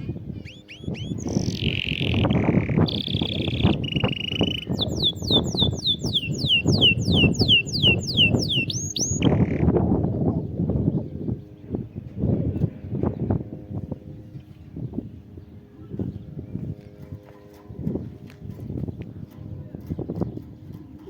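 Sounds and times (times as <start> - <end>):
canary singing: 0.0 - 9.8.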